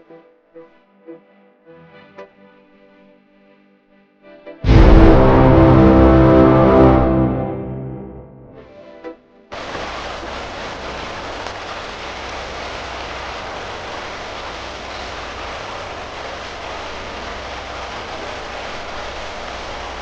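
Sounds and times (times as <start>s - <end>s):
low rumble: 4.6s - 8.6s
water rushing: 4.7s - 8.2s, 9.5s - 20.0s.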